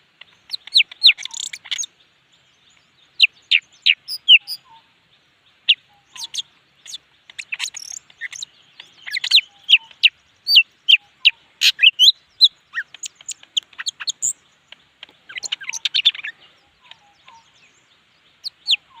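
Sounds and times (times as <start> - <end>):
bird whistling and chirping: 0.5 - 1.9, 5.7 - 14.4, 15.3 - 17.6.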